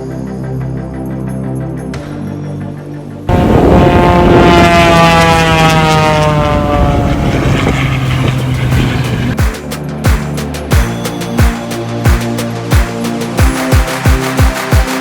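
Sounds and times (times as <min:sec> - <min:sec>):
music with thumping bass: 0:01.8 - 0:04.6, 0:07.6 - 0:15.0
aircraft flying past: 0:03.3 - 0:09.4.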